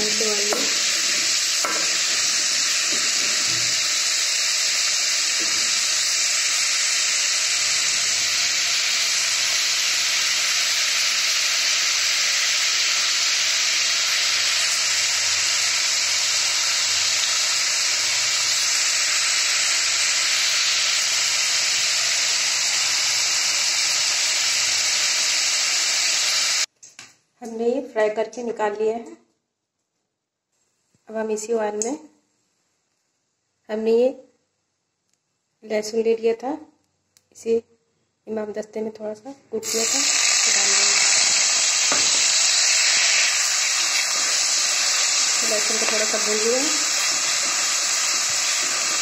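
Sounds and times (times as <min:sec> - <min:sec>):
pumpkin sizzling in hot oil: 0:00.0 - 0:26.7, 0:39.6 - 0:49.0.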